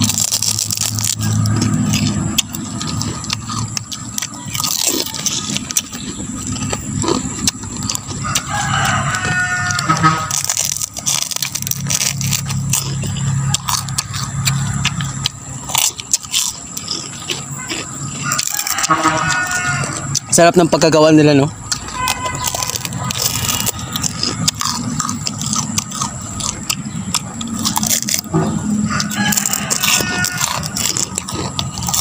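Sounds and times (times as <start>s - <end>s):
crunching and chewing: 0.0s - 32.0s
rooster crowing: 7.4s - 10.5s, 17.7s - 20.4s, 28.3s - 31.9s.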